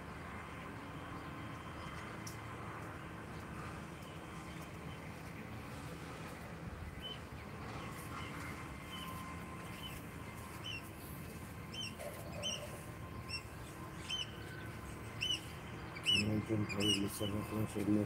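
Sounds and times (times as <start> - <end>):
low outdoor background hum: 0.0 - 18.0
small bird chirping: 11.7 - 17.4.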